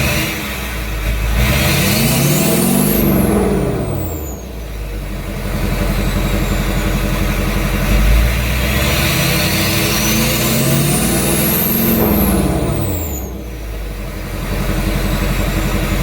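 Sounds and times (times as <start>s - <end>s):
diesel engine revving and idling: 0.0s - 16.0s
turbo whistling: 9.3s - 13.8s.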